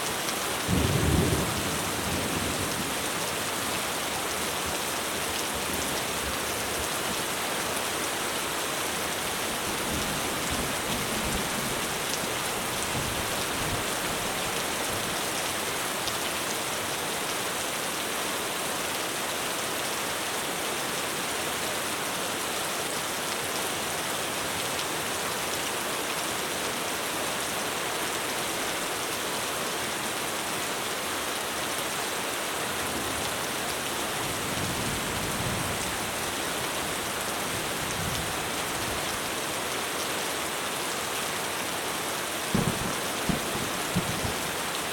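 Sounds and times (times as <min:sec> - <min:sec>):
heavy rain on a roof: 0:00.0 - 0:44.9
low thunder rumbling: 0:42.5 - 0:44.5.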